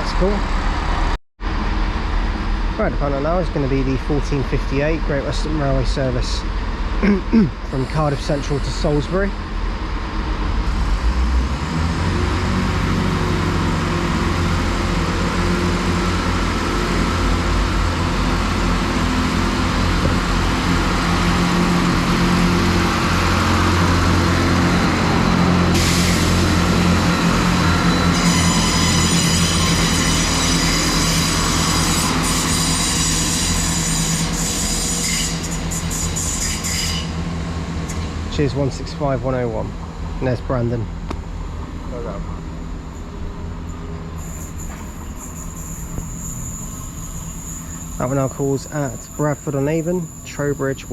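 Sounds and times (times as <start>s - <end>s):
diesel train engine drone: 0.0s - 50.9s
high-pitched squealing: 42.9s - 50.9s.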